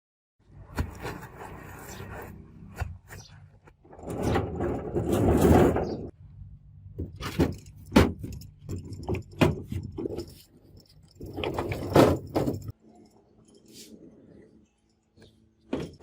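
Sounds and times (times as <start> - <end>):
metal scraping: 0.9 - 6.1.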